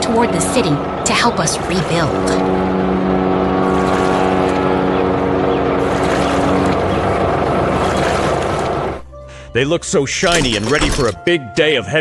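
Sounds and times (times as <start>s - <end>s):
steady pitched drone: 0.0s - 9.1s
rushing engine and water noise: 0.0s - 9.2s.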